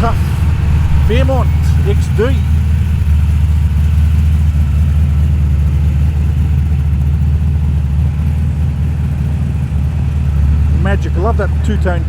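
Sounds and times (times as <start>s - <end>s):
car engine deep rumble: 0.0s - 12.0s.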